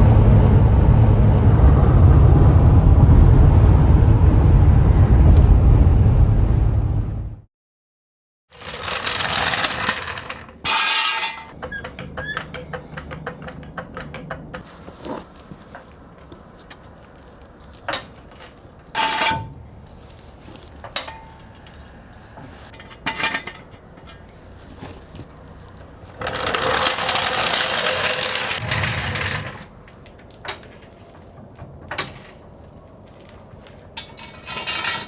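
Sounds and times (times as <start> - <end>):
rustling: 8.6 - 19.0, 19.7 - 31.4
metallic clicks and clanks: 8.6 - 35.0.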